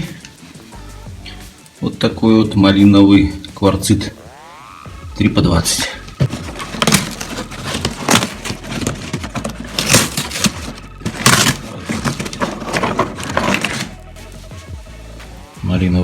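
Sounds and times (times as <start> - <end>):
crushed stone clattering: 6.1 - 13.9.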